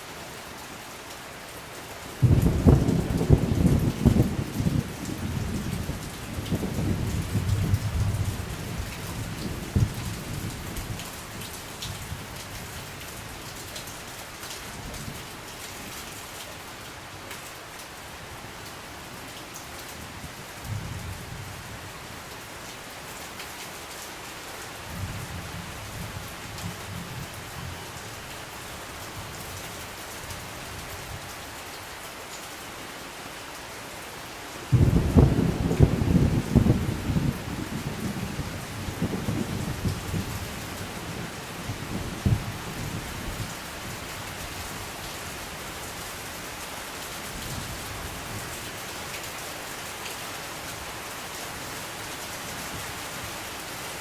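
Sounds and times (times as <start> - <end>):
steady rain falling: 0.0 - 54.0
thunder rumbling: 2.2 - 8.3, 34.7 - 43.1.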